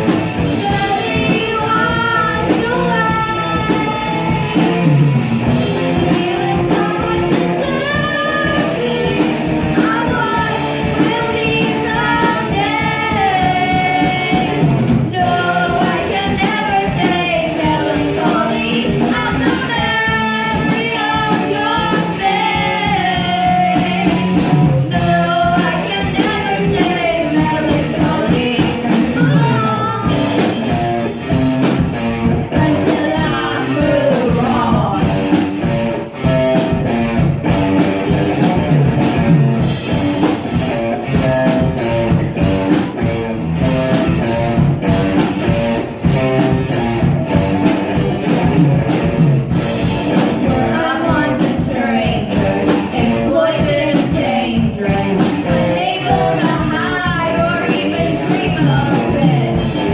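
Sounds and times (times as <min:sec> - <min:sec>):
bass guitar: 0:00.0 - 0:59.9
drums and cymbals: 0:00.0 - 0:59.9
electric guitar: 0:00.0 - 0:59.9
person singing: 0:00.4 - 0:04.7, 0:05.8 - 0:30.5, 0:32.5 - 0:35.4, 0:50.2 - 0:59.9.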